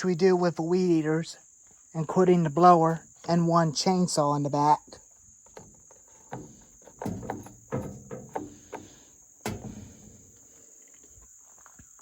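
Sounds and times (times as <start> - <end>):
crickets chirring: 0.0 - 12.0
dull knocks and clunks: 5.4 - 10.6.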